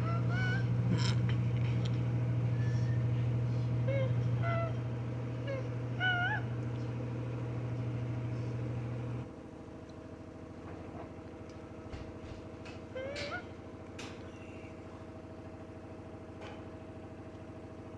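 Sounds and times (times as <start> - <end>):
wavering high calls: 0.0 - 1.3, 2.4 - 7.1, 12.9 - 13.6
washing machine motor humming: 0.0 - 9.4, 10.1 - 16.3.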